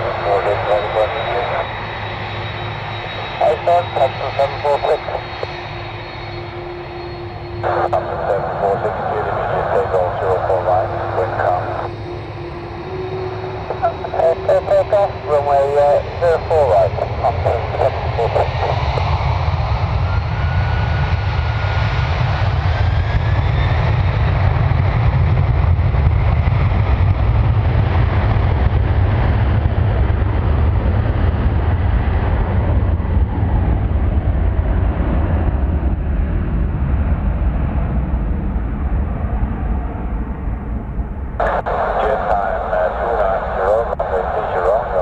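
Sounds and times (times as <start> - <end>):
thin engine whine: 0.0 - 18.1
jet engines roaring: 0.0 - 45.0
deep rumble: 35.4 - 45.0.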